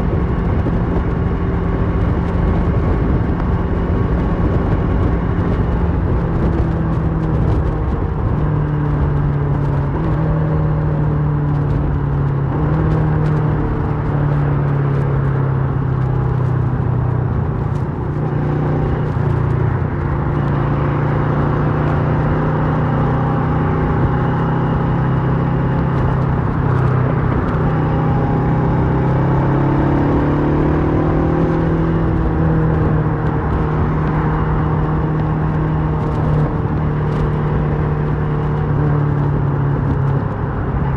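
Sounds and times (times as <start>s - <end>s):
motorcycle engine running: 0.0s - 40.9s
wind noise: 0.0s - 40.9s.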